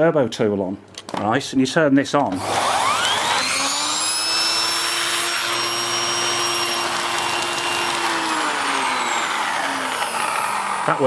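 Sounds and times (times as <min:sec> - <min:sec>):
vacuum cleaner running: 0:02.4 - 0:11.0.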